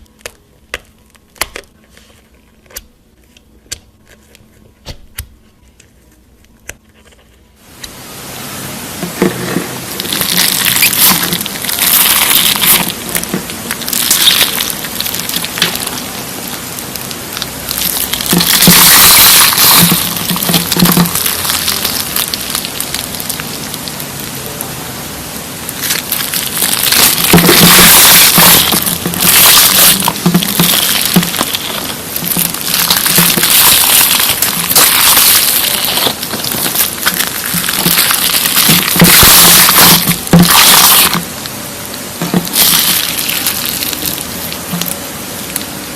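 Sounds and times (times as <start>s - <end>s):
slime squishing and popping: 0.0s - 1.9s, 9.0s - 24.3s, 25.7s - 45.0s.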